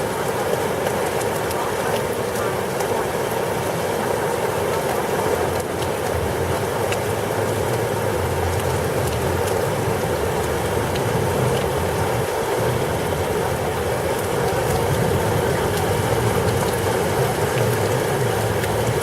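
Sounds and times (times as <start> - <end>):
heavy rain pouring: 0.0 - 19.0
raindrops ticking close by: 0.0 - 19.0
low rumble: 5.5 - 19.0.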